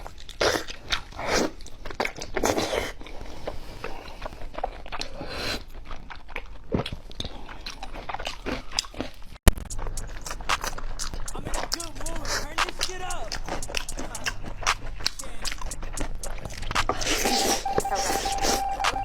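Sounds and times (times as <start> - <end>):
crunchy biting and chewing: 0.1 - 12.4.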